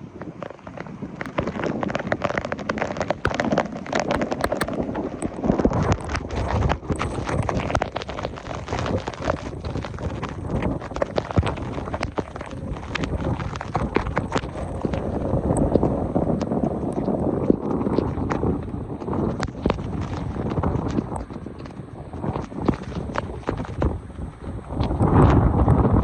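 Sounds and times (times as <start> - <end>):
raindrops tapping near microphone: 0.0 - 26.0
heavy rain falling: 0.4 - 26.0.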